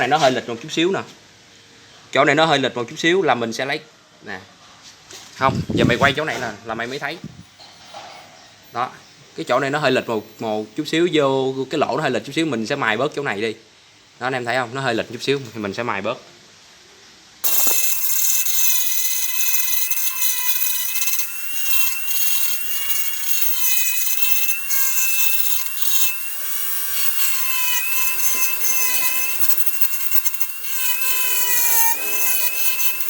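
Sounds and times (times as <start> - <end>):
electric grinder grinding plastic: 17.4 - 33.0.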